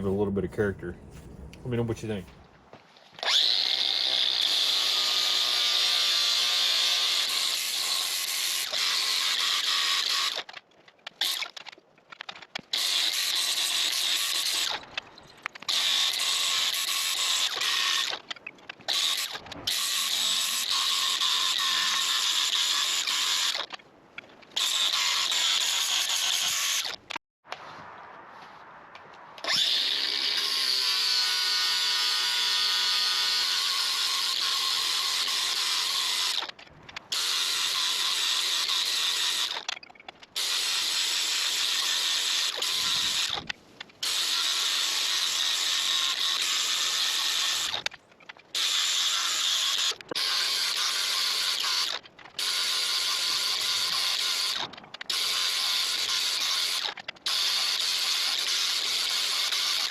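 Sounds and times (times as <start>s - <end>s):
power tool abrading steel: 3.2s - 10.5s, 18.9s - 23.7s, 29.4s - 39.8s, 40.4s - 47.9s, 48.5s - 59.9s.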